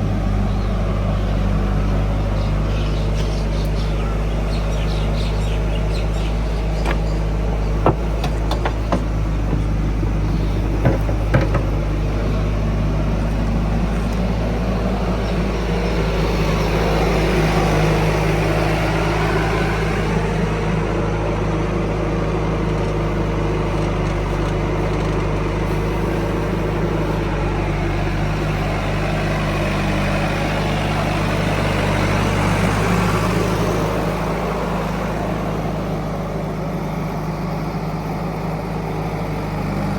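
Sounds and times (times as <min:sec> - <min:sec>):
heavy diesel engine running: 0:00.0 - 0:39.9
sharp knocks: 0:06.8 - 0:12.0.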